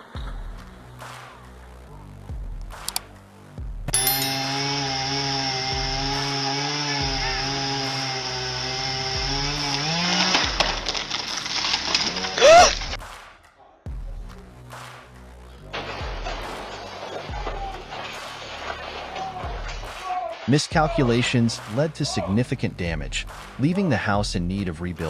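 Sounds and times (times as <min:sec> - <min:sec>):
sharp cracks: 0:02.6 - 0:03.3, 0:04.4 - 0:13.6, 0:14.3 - 0:22.2, 0:23.2 - 0:23.7
chainsaw running under load: 0:04.0 - 0:12.9.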